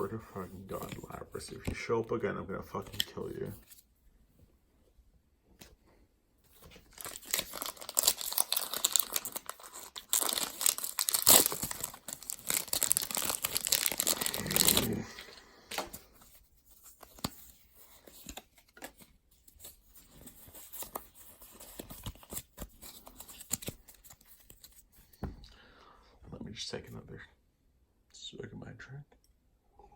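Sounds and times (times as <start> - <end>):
cards rustling and clicking: 0.4 - 2.0, 2.6 - 3.9, 6.5 - 25.4
foil wrapper tearing and crinkling: 6.9 - 15.3.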